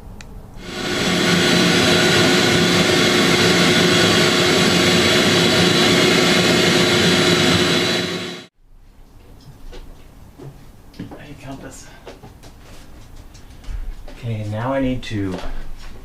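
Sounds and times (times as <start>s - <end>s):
electric motor whining: 0.6s - 8.5s.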